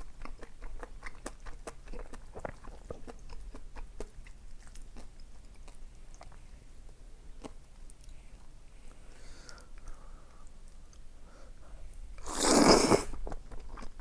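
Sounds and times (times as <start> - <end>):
chewing with wet mouth clicks: 0.0 - 8.6.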